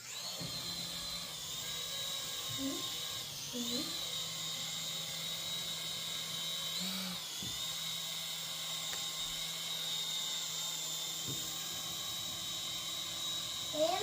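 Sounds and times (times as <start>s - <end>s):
model helicopter motor whining: 0.0s - 14.0s.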